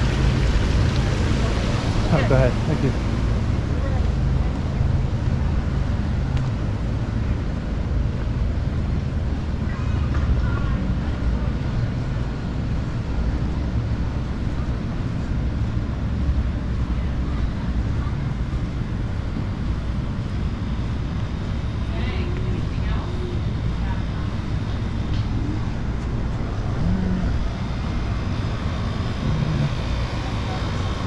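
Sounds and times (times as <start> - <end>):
faint voices: 9.5 - 12.5, 21.8 - 31.0.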